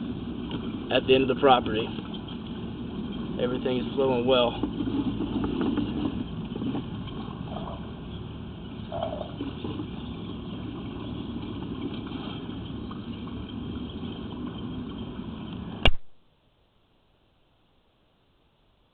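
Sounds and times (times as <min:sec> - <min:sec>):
sharp click: 0:15.8 - 0:16.2.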